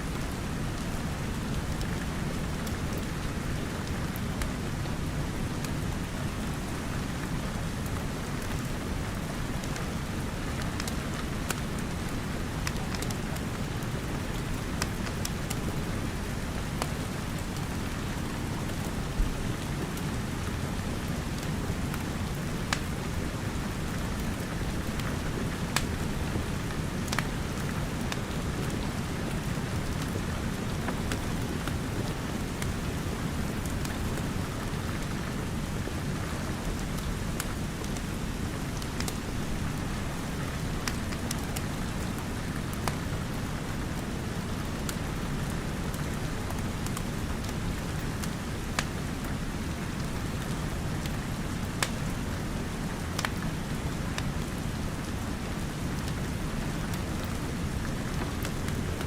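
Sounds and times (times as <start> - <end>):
steady rain: 0.0 - 59.0
wood fire crackling and popping: 9.7 - 18.9, 21.0 - 29.1, 36.9 - 43.4, 45.9 - 49.0, 51.0 - 52.2, 53.0 - 54.6.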